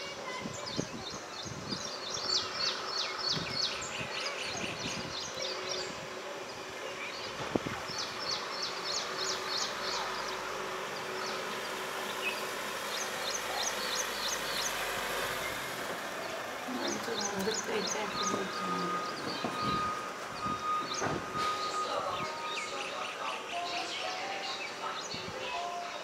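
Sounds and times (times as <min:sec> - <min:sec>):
bird chirping: 0:00.5 - 0:26.0.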